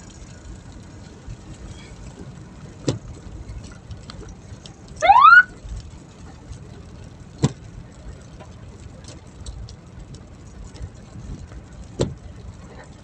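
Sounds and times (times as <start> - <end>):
moving vehicle rumble: 0.0 - 13.0
siren whoop: 5.0 - 5.6.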